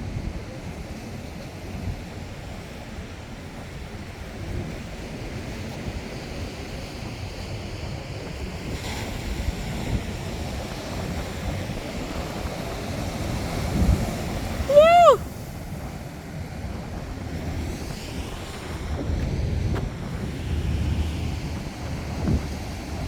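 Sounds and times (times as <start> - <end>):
wind buffeting microphone: 6.8 - 23.0.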